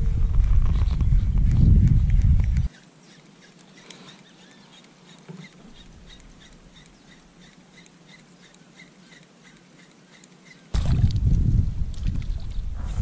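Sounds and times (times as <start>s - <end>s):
bird chirping: 0.7s - 10.8s.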